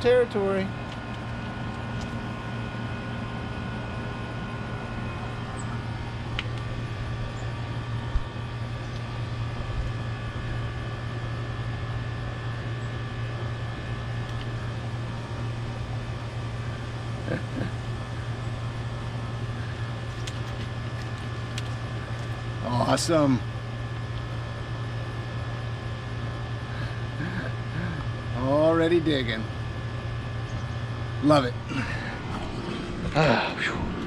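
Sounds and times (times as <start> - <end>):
machine hum: 0.0 - 34.0.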